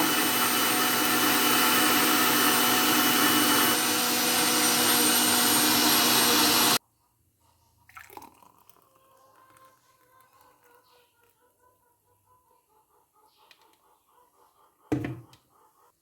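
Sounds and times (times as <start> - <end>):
electric mixer grinder running: 0.0 - 6.8.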